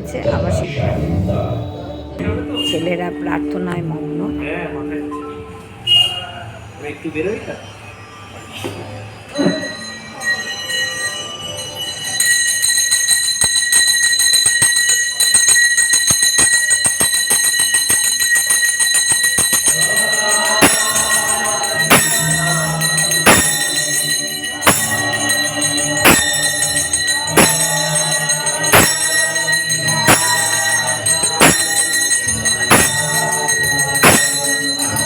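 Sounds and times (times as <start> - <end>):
hand bell ringing rapidly: 10.4 - 35.0
heavy beats: 19.4 - 35.0.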